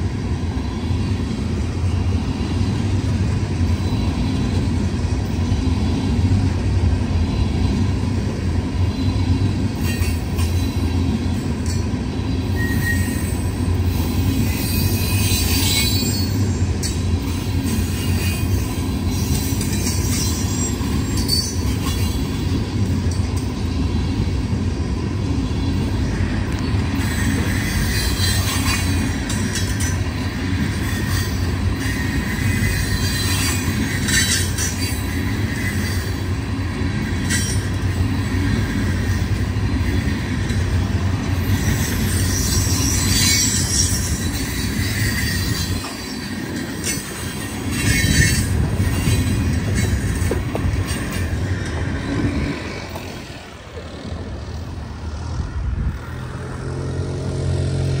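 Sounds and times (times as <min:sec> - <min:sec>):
train wheels rumbling on rail: 0:00.0 - 0:58.0
high-pitched wheel squeals: 0:12.4 - 0:22.6, 0:26.6 - 0:36.4, 0:41.2 - 0:53.2.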